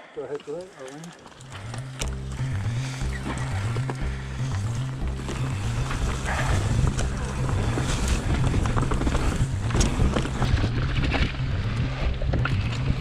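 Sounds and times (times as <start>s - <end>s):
bike frame rattling: 0.7s - 13.0s.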